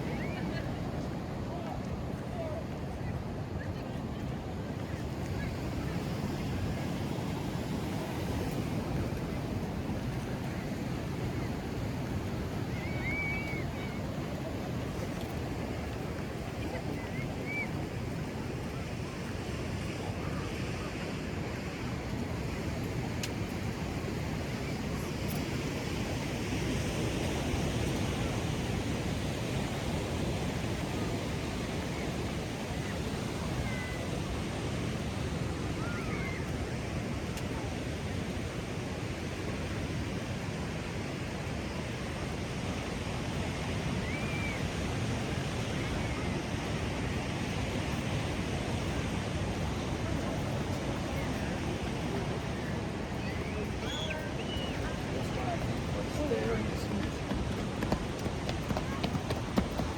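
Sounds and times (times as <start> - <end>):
ocean surf breaking: 46.7 - 59.9
faint high chirps: 53.2 - 54.9.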